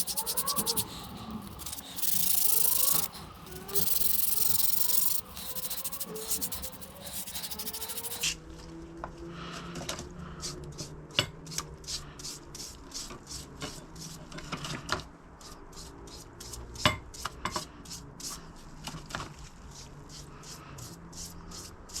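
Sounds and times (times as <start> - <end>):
sharp metallic clicks: 0.0 - 8.3
sandpaper rubbing on metal: 0.0 - 8.4.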